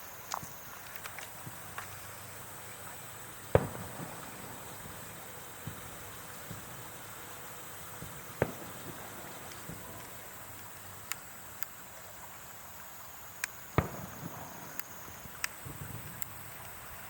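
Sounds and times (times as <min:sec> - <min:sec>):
steady background hiss: 0:00.0 - 0:17.0
fireworks booming: 0:01.4 - 0:11.2, 0:13.4 - 0:16.5
faint sharp cracks: 0:03.6 - 0:06.7, 0:13.4 - 0:16.8.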